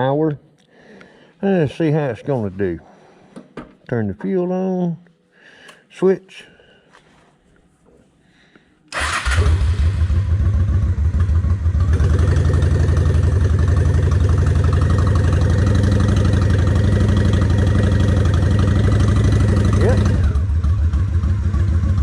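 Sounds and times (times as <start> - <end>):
motorcycle engine starting and idling: 8.9 - 22.0.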